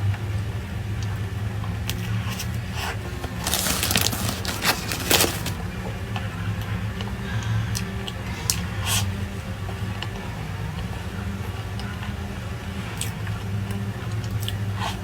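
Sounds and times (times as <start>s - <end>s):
person chewing and crunching food: 3.0s - 5.6s.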